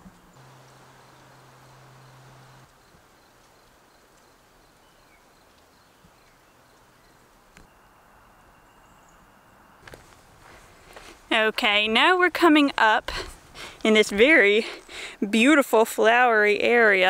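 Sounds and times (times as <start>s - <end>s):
distant bird calls: 0.3s - 10.9s.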